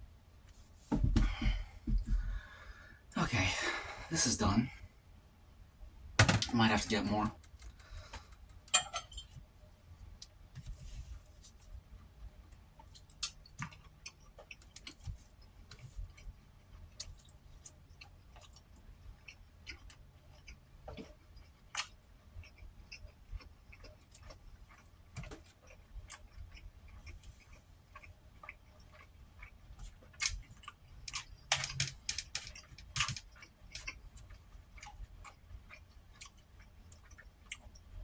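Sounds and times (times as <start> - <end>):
utensils clicking on dishes: 31.5 - 33.2.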